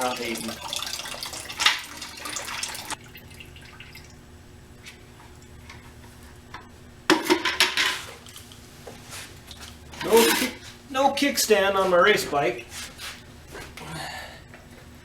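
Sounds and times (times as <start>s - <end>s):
drips: 0.0s - 4.2s
liquid pouring and trickling: 0.0s - 4.2s.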